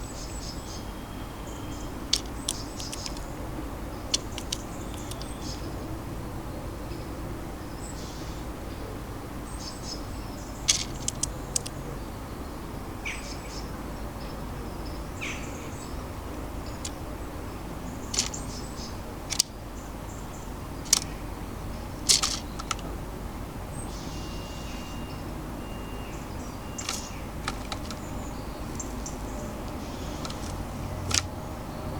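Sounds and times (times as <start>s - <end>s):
small birds chirping: 0.0s - 31.9s
sharp clicks and taps: 2.1s - 3.3s, 4.1s - 5.6s, 10.7s - 11.7s, 18.2s - 18.4s, 19.3s - 19.6s, 20.8s - 21.1s, 22.1s - 22.9s, 26.8s - 31.3s.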